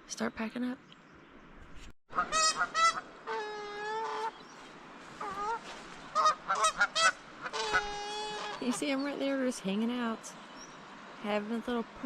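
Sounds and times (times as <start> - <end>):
geese honking: 2.1 - 4.4, 5.1 - 9.0.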